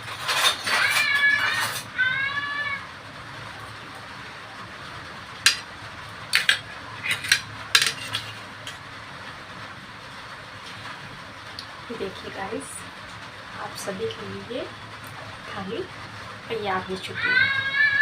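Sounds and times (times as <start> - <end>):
dishes and spoon clinking: 0.0 - 1.9, 5.5 - 5.7, 6.3 - 8.8.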